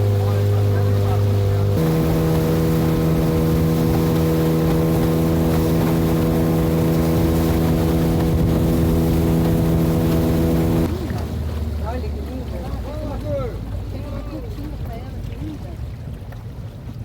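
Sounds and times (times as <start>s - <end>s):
boat motor running: 0.0s - 17.0s
water noise: 0.0s - 17.0s
rushing wind: 1.7s - 10.9s.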